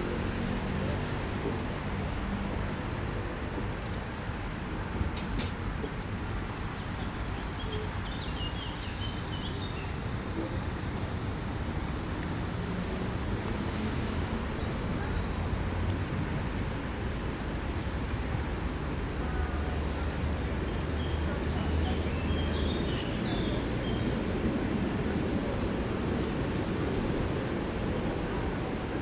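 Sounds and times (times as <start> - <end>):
low hum of city traffic: 0.0 - 29.0
faint voices: 18.1 - 27.0.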